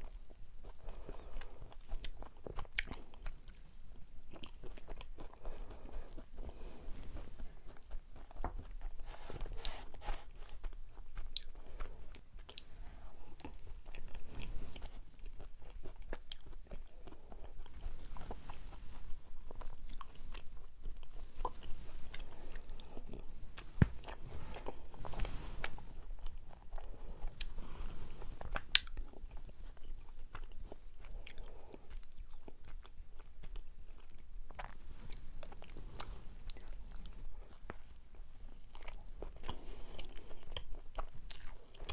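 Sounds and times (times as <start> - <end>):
person chewing rice cake: 0.0 - 41.9.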